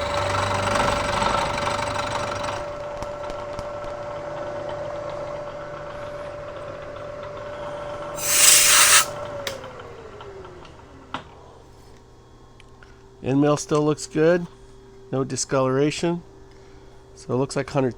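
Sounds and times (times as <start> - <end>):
compressed air hiss: 8.2 - 9.1.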